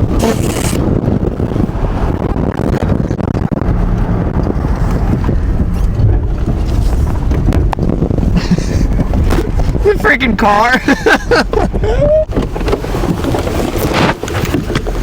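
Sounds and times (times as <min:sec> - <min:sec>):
van engine rumbling: 0:00.0 - 0:15.0
wind buffeting microphone: 0:00.0 - 0:15.0.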